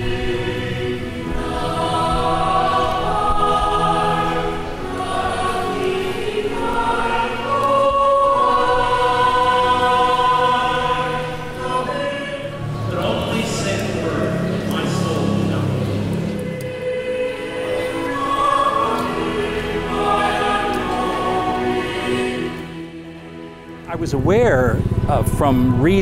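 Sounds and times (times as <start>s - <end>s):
choir singing a hymn: 0.0s - 26.0s.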